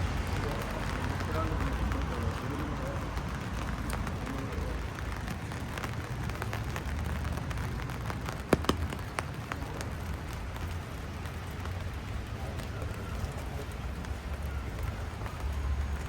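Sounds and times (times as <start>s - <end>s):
steady rain falling: 0.0s - 16.0s
sharper taps: 8.5s - 9.1s.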